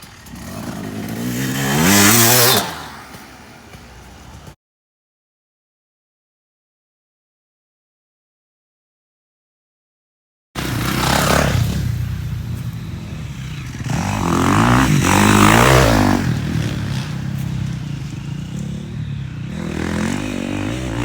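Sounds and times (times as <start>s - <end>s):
motorcycle engine revving: 0.0s - 4.6s, 10.6s - 21.0s.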